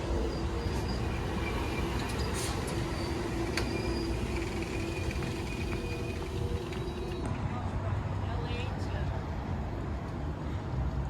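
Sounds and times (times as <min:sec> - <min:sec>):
wheels and brakes squealing: 0:00.0 - 0:07.4
train rumbling slowly: 0:00.0 - 0:11.0.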